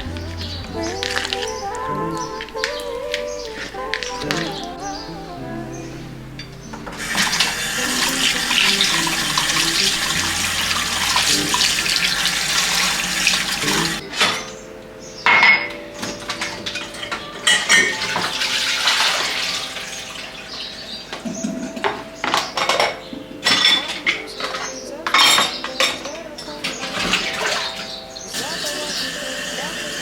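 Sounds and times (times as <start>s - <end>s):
dishes and cutlery clinking: 21.1s - 29.1s.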